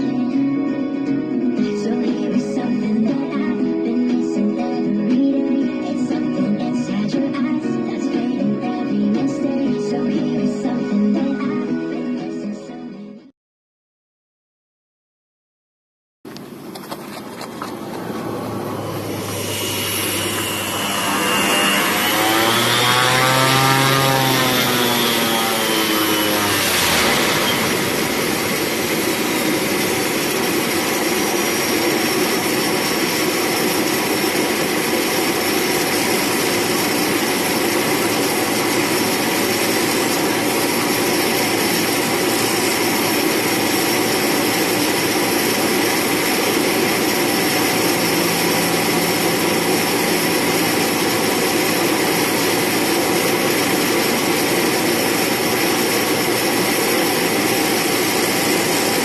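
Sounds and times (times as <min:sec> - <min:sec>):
turboprop engine and propeller drone: 0:00.0 - 0:12.3, 0:16.3 - 0:59.0
high turbine whine: 0:16.3 - 0:59.0.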